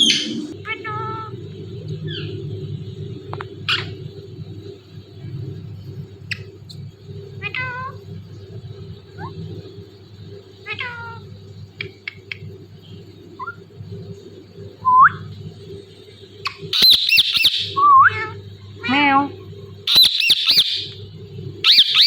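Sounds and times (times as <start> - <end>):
parrot squawks and chirps: 0.0 - 0.8, 16.5 - 18.4, 19.9 - 20.9, 21.6 - 22.0
low hum: 0.0 - 16.7
parrot imitating cat meow: 10.6 - 11.2, 18.0 - 19.1.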